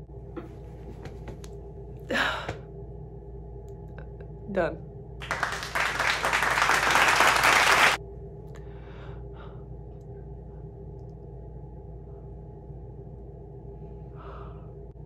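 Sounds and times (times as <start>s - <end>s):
steady low hum: 0.0s - 15.0s
applause: 5.2s - 8.0s.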